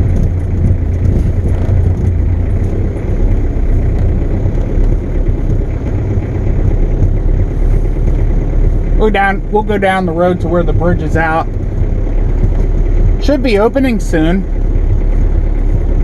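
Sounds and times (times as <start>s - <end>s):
diesel engine droning: 0.0s - 16.0s
road noise: 0.0s - 16.0s.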